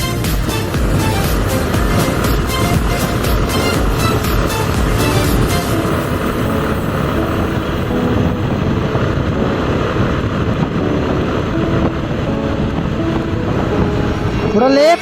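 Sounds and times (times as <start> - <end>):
motorcycle running: 0.0 - 13.8
wind rushing over microphone: 0.0 - 15.0.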